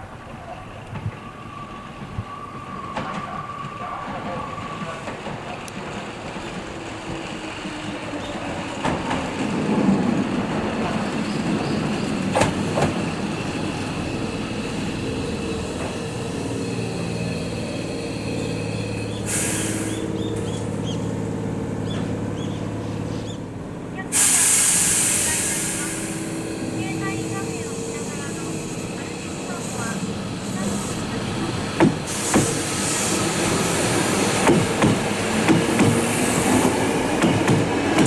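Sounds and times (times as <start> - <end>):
halted train humming: 0.0 - 38.0
train wheels clicking over rail joints: 4.1 - 23.5, 24.2 - 38.0
air hiss: 17.7 - 20.2, 24.1 - 26.8, 31.9 - 37.0.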